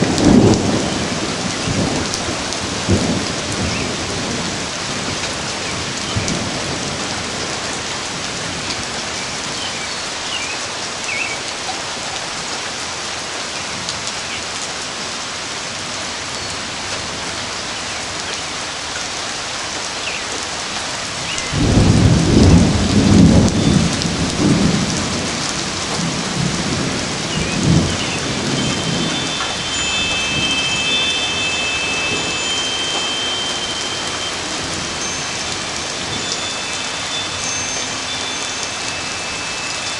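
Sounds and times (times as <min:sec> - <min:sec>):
thunder rumbling: 0:00.0 - 0:07.7, 0:21.2 - 0:38.1
rain falling: 0:00.0 - 0:39.9.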